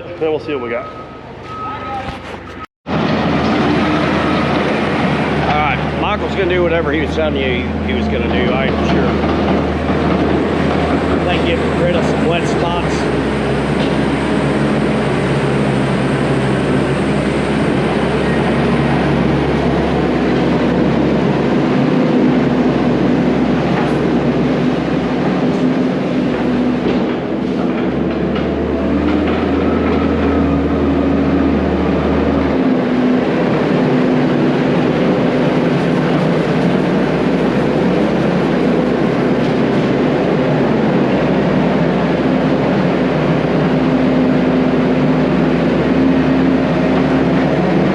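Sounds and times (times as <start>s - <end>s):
heavy diesel engine running: 2.2s - 47.9s.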